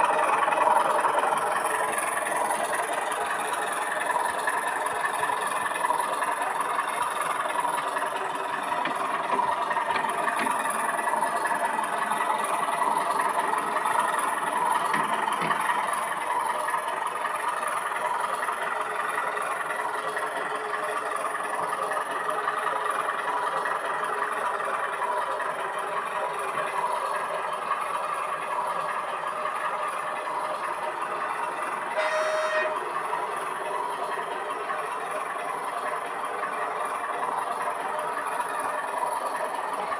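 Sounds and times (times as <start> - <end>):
model train running on track: 0.0 - 39.9
short tone: 32.0 - 32.9.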